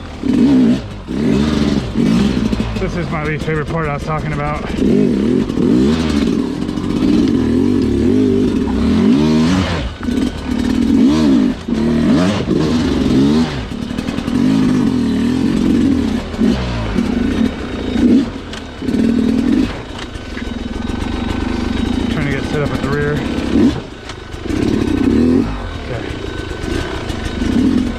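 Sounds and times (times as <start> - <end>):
dirt bike engine revving: 0.0 - 27.9.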